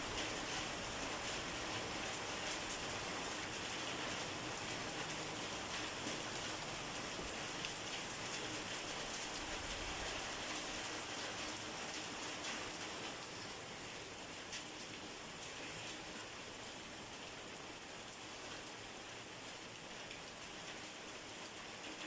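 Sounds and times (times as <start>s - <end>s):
steady rain hiss: 0.0s - 22.0s
faint raindrop ticks: 7.5s - 9.4s, 14.4s - 16.0s, 19.7s - 21.0s.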